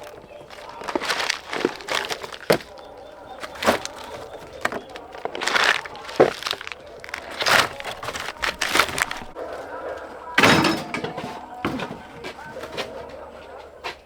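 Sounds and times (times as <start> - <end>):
plant stems snapping: 0.0 - 9.4.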